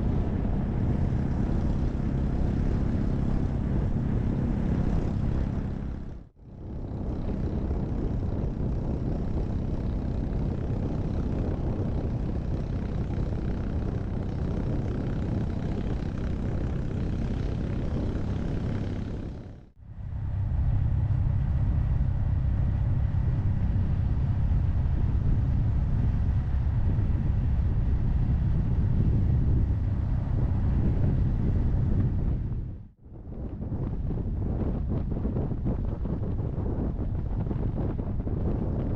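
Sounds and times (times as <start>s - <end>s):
road noise: 0.0s - 8.2s, 10.0s - 32.9s
wind rushing over microphone: 0.0s - 38.9s
motorcycle engine running: 0.1s - 19.7s.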